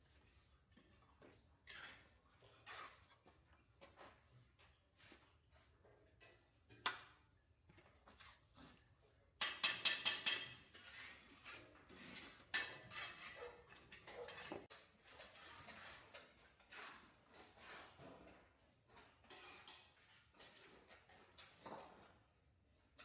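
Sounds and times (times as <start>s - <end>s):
dishes and utensils clattering: 9.4s - 18.4s, 19.0s - 22.1s.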